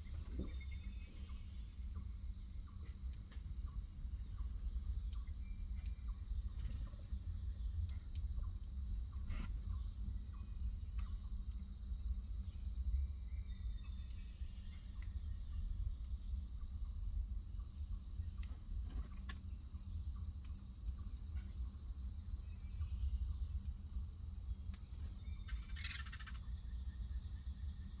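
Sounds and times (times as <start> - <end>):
bird chirps: 0.0 - 2.1, 8.4 - 16.1, 18.0 - 23.8, 24.7 - 28.0
insect trill: 0.0 - 28.0.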